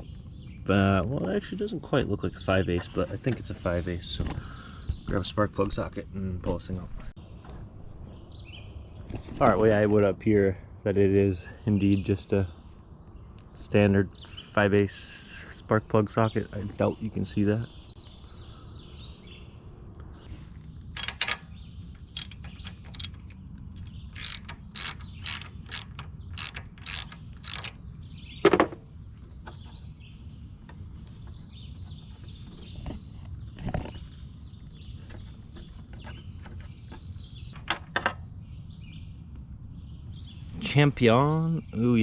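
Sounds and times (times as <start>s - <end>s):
ratchet clicking: 22.0s - 27.8s.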